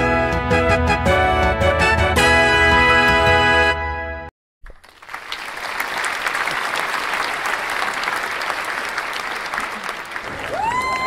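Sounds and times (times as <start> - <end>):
applause: 4.7 - 11.0.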